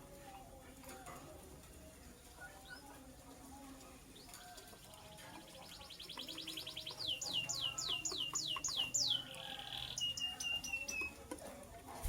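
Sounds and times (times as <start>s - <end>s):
bird singing: 4.2s - 11.2s.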